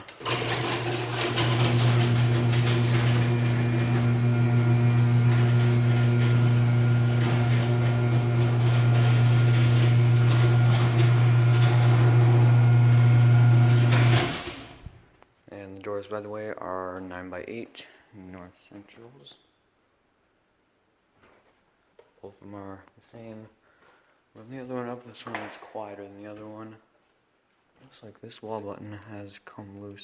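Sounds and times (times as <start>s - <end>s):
garage door clicking and rattling: 0.0s - 4.6s, 5.2s - 15.0s
garage door opener motor humming: 0.0s - 15.0s.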